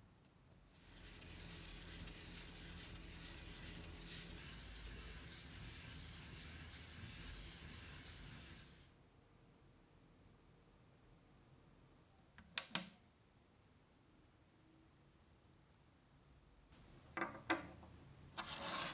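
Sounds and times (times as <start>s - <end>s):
spray nozzle hissing: 0.8s - 8.9s.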